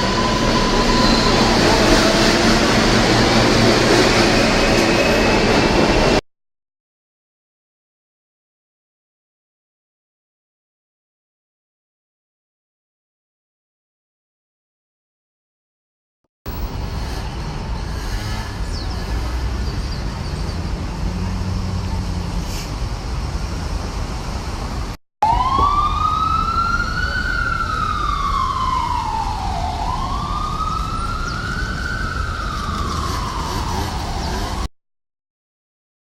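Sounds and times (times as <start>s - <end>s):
city traffic rumble: 0.0s - 6.2s, 16.5s - 34.7s
emergency siren wailing: 0.0s - 6.2s, 25.2s - 34.7s.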